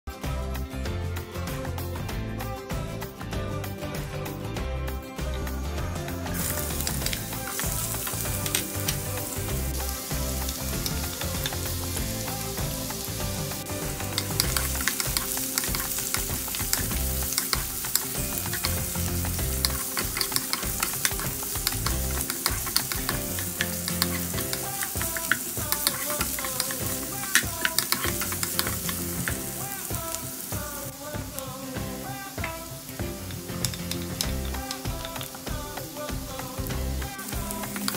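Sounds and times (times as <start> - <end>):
onion sizzling in hot oil: 6.1 - 37.9
wooden spatula scraping a wok: 14.2 - 30.2.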